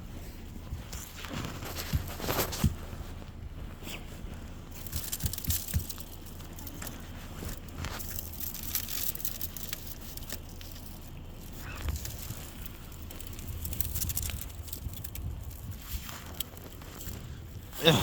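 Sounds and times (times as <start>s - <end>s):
ice cracking and crushing: 4.7s - 18.0s.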